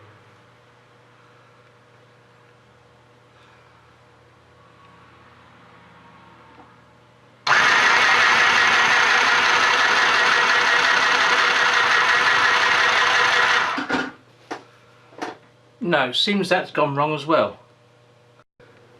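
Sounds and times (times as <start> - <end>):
sewing machine whirring: 7.5 - 14.1.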